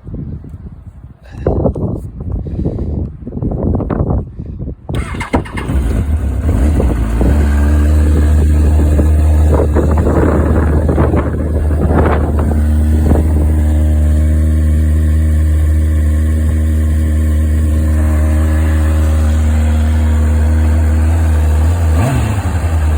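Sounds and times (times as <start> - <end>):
wind buffeting microphone: 0.0 - 22.9
motorcycle engine idling: 5.0 - 22.9.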